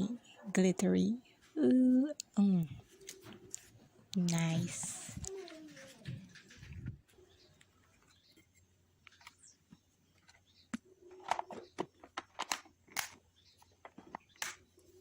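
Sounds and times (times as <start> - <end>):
crinkling: 2.9 - 15.0
handling clicks and taps: 7.6 - 14.6.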